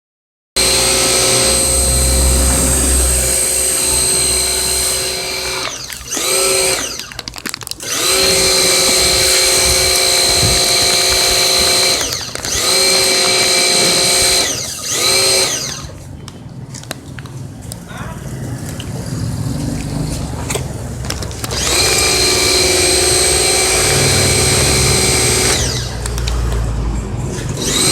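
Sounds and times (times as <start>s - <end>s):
small high-speed motor whining: 0.6s - 7.2s, 7.8s - 16.0s, 21.4s - 26.2s, 27.5s - 27.9s.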